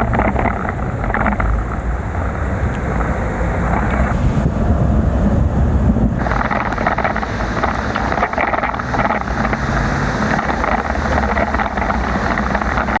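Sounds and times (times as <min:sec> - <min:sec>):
wind rumbling on microphone: 0:00.0 - 0:13.0
tyres hissing on wet road: 0:06.2 - 0:13.0.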